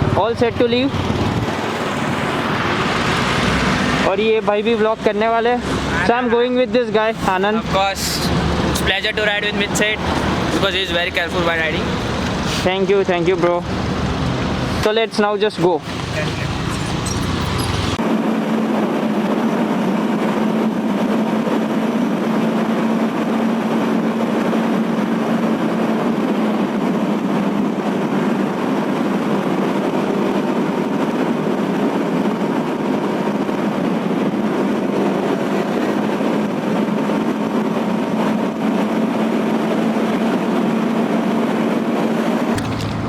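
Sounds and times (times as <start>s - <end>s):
motorcycle engine hum: 0.0s - 4.4s, 7.1s - 12.7s, 13.6s - 14.9s, 15.5s - 18.0s, 42.4s - 43.0s
wind and road noise: 0.0s - 43.0s.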